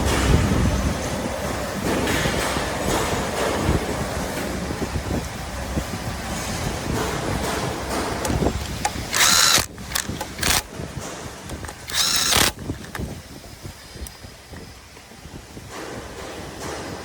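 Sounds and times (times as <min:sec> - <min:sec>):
power driver whirring in bursts: 0:08.2 - 0:10.8, 0:11.4 - 0:13.2.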